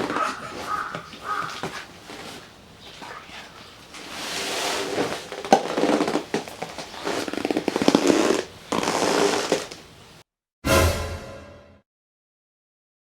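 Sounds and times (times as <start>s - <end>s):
camp cot creaking and squeaking: 0.0s - 10.1s.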